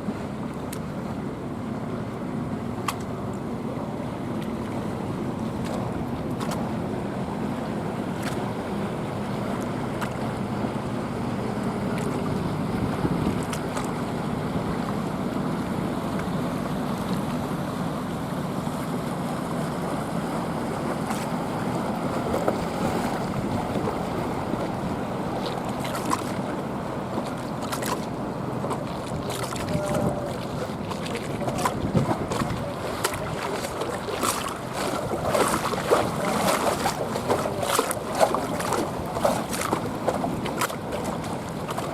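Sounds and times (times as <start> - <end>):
motorboat engine running: 0.0 - 41.9
water lapping: 0.0 - 41.9.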